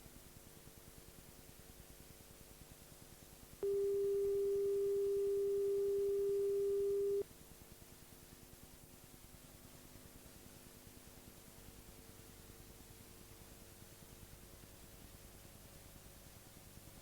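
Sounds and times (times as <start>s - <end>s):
tape hiss and hum: 3.6s - 7.2s.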